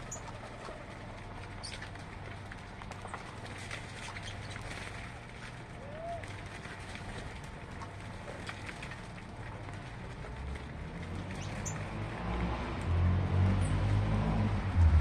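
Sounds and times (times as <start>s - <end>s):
passing vehicle engine rumble: 8.5s - 15.0s.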